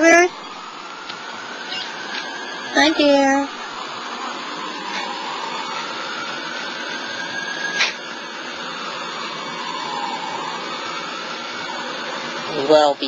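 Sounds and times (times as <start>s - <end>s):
fire engine siren wailing: 0.0s - 13.0s.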